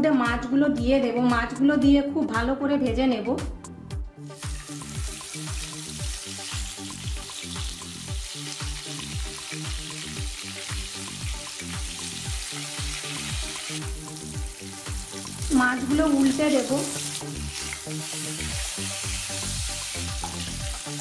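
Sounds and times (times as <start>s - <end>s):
soft background music beat: 0.0s - 21.0s
fish sizzling in hot oil: 4.3s - 21.0s.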